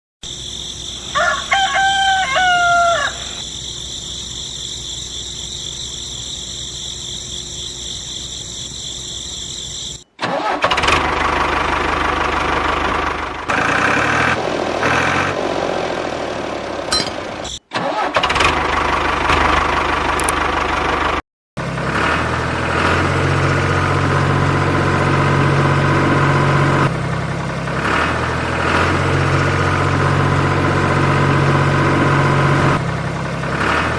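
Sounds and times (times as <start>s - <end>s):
rooster crowing: 0.4s - 3.7s
high-pitched ringing: 16.9s - 17.6s.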